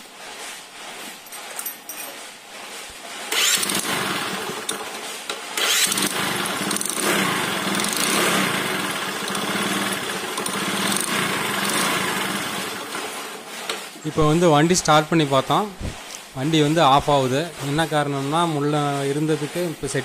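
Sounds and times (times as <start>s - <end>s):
motorcycle engine starting and idling: 3.3s - 13.4s.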